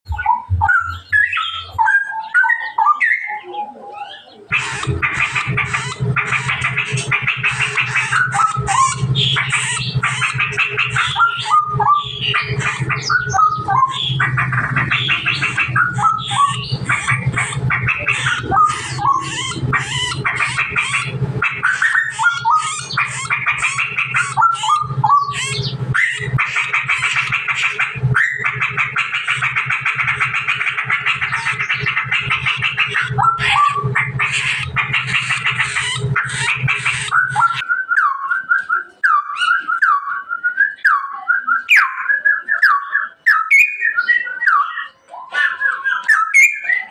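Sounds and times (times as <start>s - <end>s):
bulbul singing: 0.1s - 46.9s
steady low hum: 4.3s - 38.2s.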